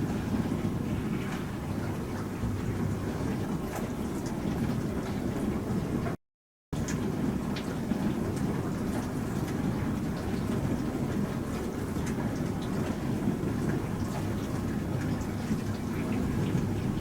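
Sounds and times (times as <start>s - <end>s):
faint ticks and splashes: 6.8s - 17.0s.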